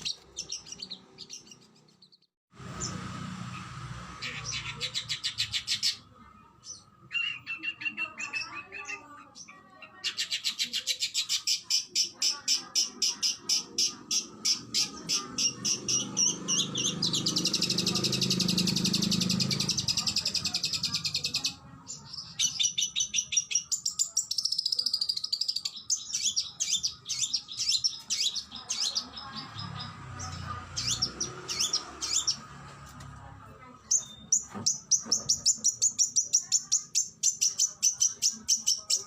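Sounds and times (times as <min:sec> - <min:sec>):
bird singing sharp repeated notes: 0:00.0 - 0:09.5, 0:33.8 - 0:39.0
buzzy bird trill: 0:10.1 - 0:32.5.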